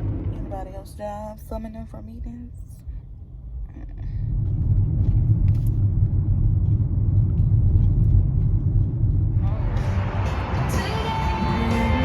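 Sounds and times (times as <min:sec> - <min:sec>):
car rumble inside cabin: 0:00.0 - 0:12.0
music: 0:09.4 - 0:12.0.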